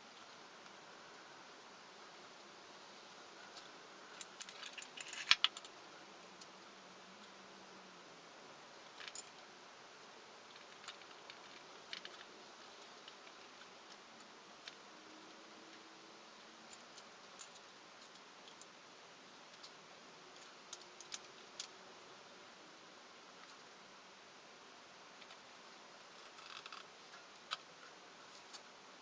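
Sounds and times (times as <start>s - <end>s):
low steady hiss: 0.0s - 29.0s
faint clicks and ticks: 10.0s - 15.9s, 25.2s - 28.7s.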